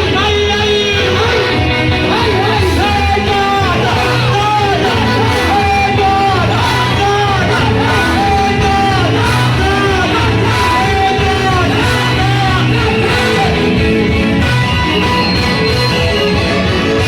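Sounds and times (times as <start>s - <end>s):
band with steady bass line: 0.0s - 17.0s.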